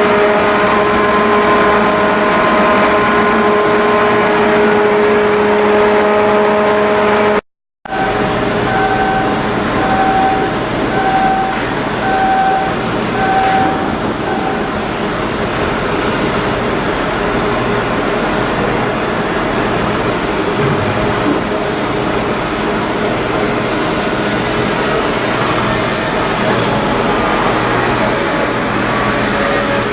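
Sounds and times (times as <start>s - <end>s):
beeping alarm: 7.9s - 16.2s
machinery noise: 7.9s - 29.9s.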